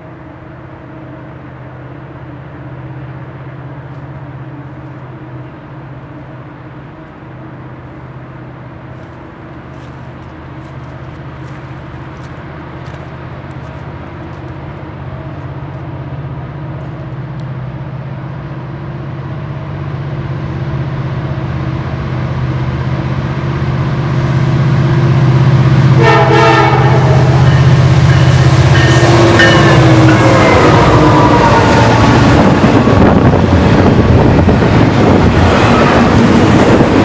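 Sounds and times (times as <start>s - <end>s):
train engine drone: 0.0s - 37.0s
train horn: 25.6s - 32.4s.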